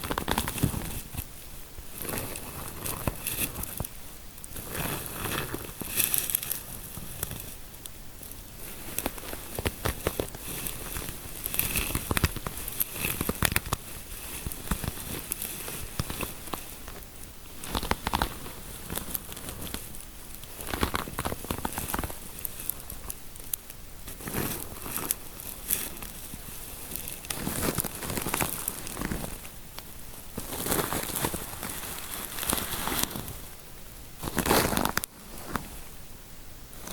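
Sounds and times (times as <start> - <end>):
fingers scratching through hair: 8.2 - 17.0.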